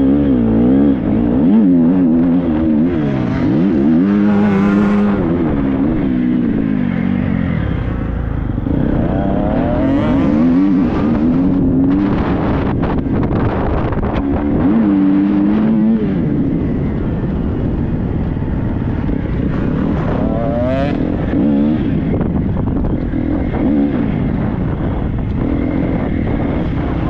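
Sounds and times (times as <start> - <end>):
motocross bike engine revving: 0.0 - 27.0.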